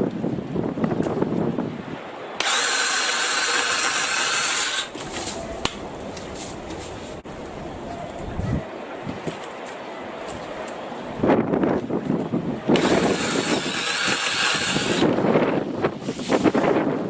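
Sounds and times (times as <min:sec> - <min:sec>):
cordless saw whining: 0:02.4 - 0:05.2, 0:12.7 - 0:15.2.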